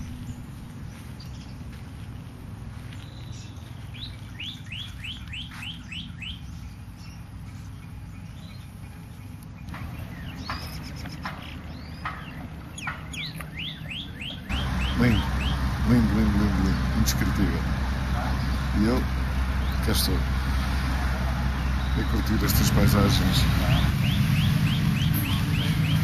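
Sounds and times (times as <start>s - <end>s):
low background rumble: 0.0s - 26.0s
small bird chirping: 2.8s - 15.6s, 21.2s - 26.0s
loud low noise: 14.5s - 26.0s.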